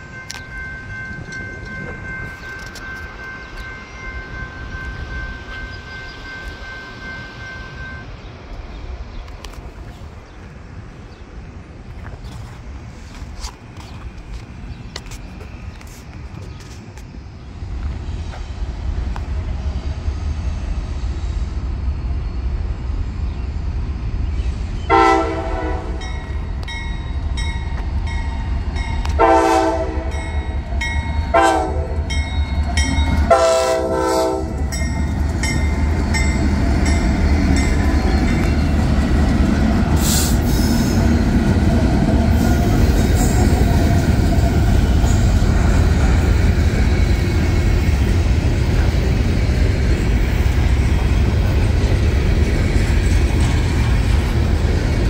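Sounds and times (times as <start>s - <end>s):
crossing bell dinging: 0.0s - 8.4s, 25.0s - 39.8s
train rumbling past: 0.0s - 55.0s
locomotive horn: 24.9s - 26.2s, 29.1s - 30.3s, 31.3s - 32.2s, 33.2s - 34.7s.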